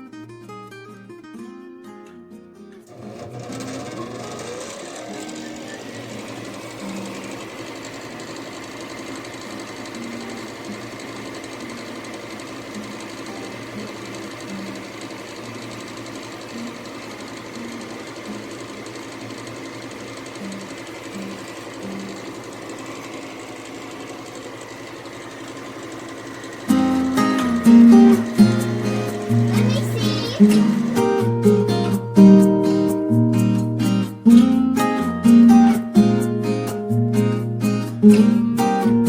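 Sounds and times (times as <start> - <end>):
furnace motor running: 2.8 - 33.0
fast even chatter: 26.9 - 31.1.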